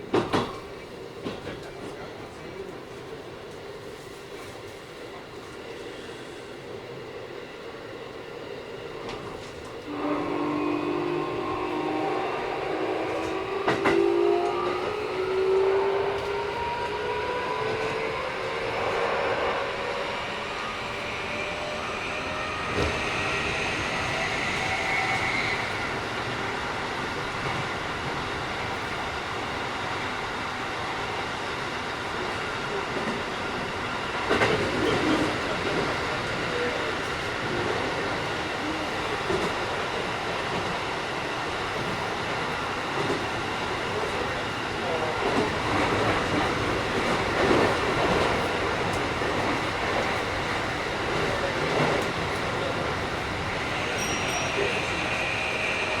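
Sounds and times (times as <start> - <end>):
train rumble inside car: 9.0 - 19.0, 32.1 - 56.0
train horn: 9.9 - 17.7
rail-joint clicks: 13.1 - 14.8.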